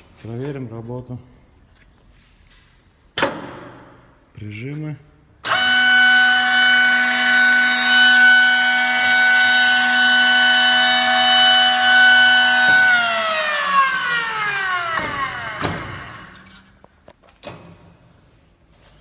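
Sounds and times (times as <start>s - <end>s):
router motor whining: 5.5s - 16.6s.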